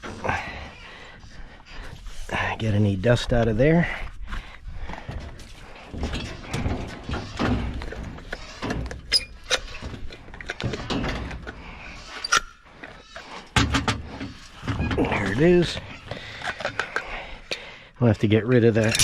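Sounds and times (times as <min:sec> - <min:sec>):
pipe scraping and rubbing: 0:05.5 - 0:17.4.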